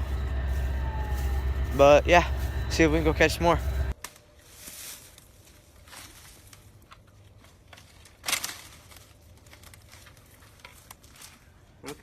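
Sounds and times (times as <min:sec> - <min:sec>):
faint outdoor background: 0:00.0 - 0:12.0
soft rustles and scuffs: 0:04.4 - 0:11.6.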